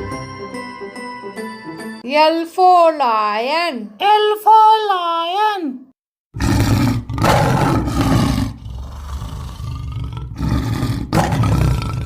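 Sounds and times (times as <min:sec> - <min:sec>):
lion roaring: 0:06.4 - 0:12.0.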